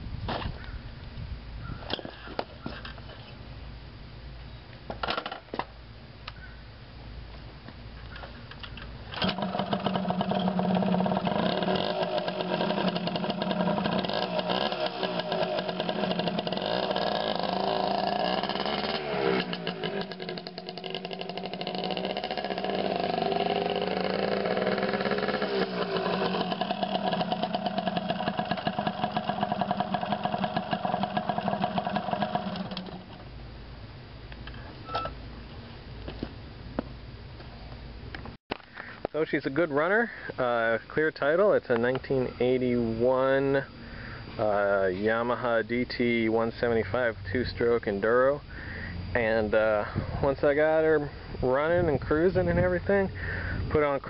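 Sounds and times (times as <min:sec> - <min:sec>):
motorcycle engine revving: 0:09.2 - 0:33.3.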